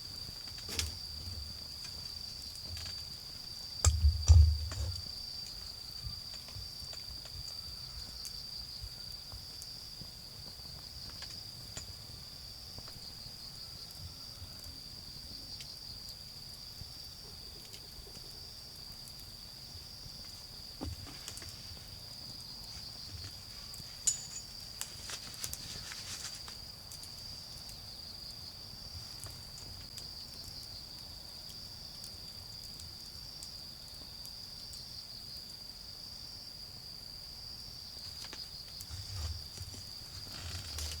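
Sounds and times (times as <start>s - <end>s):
wood fire crackling and popping: 0.0s - 13.3s, 17.6s - 27.8s, 28.6s - 34.9s
crickets chirping: 0.0s - 41.0s.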